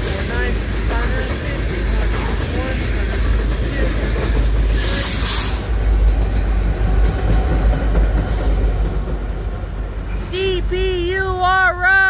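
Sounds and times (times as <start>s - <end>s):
train wheels rumbling on rails: 0.0s - 12.0s
air brake hiss: 4.7s - 5.7s.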